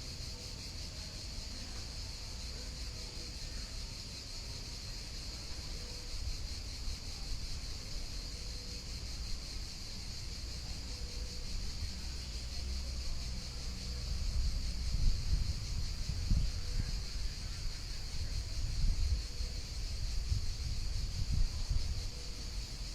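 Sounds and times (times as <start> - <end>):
wind rumble on microphone: 12.7 - 22.9.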